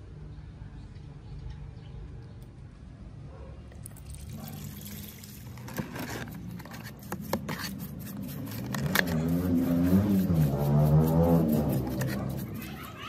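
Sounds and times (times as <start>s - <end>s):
liquid splashing and sloshing: 3.8s - 7.2s
brush scrubbing in liquid: 3.9s - 13.0s.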